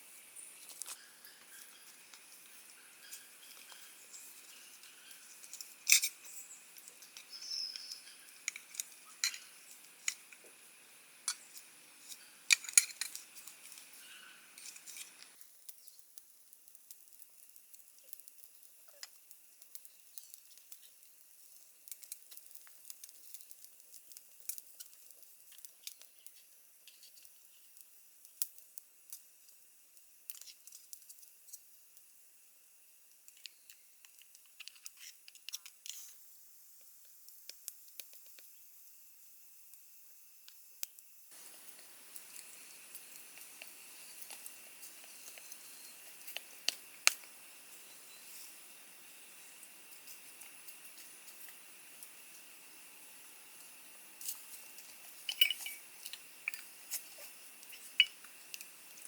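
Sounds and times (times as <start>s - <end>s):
background hiss: 0.0s - 59.0s
small objects clicking and tapping: 0.6s - 32.1s, 33.1s - 36.2s, 36.8s - 38.6s, 40.4s - 52.5s, 53.6s - 59.0s.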